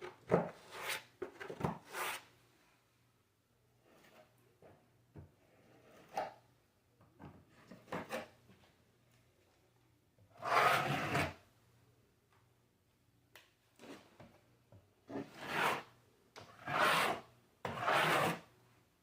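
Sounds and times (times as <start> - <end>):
hand tool scraping drywall: 0.4 - 1.1, 1.8 - 2.3, 5.5 - 6.4, 10.4 - 11.4, 15.1 - 15.9, 16.5 - 18.5.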